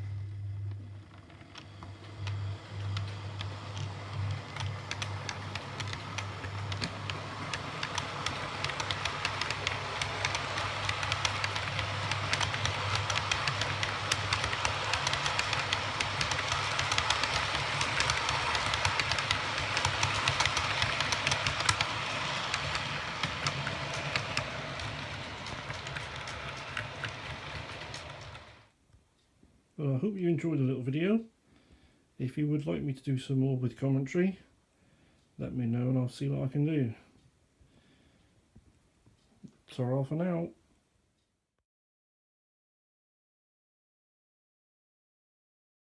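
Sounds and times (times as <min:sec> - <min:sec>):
low hum: 0:00.0 - 0:28.6
wheels clicking over rail joints: 0:00.6 - 0:28.7.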